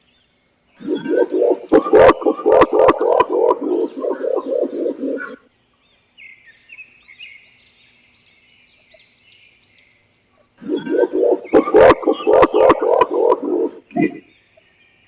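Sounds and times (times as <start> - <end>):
pigeon cooing: 0.8 - 5.4, 10.6 - 14.2.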